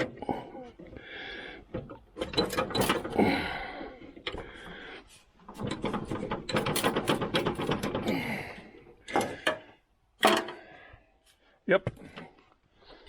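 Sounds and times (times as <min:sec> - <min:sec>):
metal clanks and scrapes: 0:09.1 - 0:10.6.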